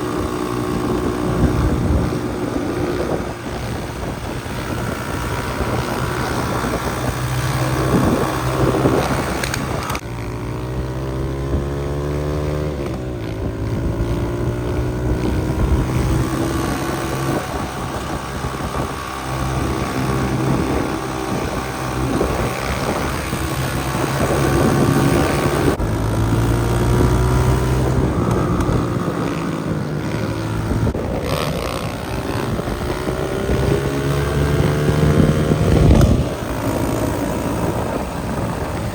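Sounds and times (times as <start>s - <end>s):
motorcycle engine revving: 0.0s - 38.9s
wind buffeting microphone: 0.0s - 38.9s.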